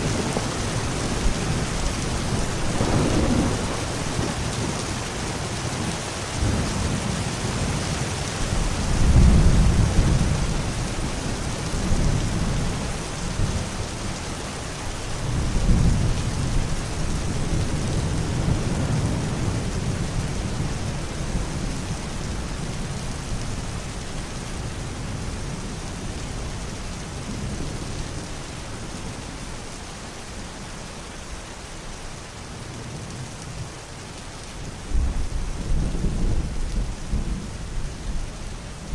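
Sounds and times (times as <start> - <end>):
rolling thunder: 0.0 - 5.5, 8.5 - 13.7, 34.8 - 38.9
steady rain: 0.0 - 38.9.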